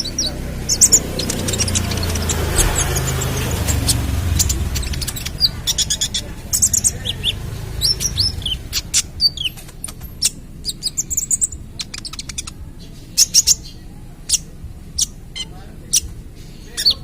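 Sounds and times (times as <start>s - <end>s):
bird chirping and whistling: 0.0s - 17.0s.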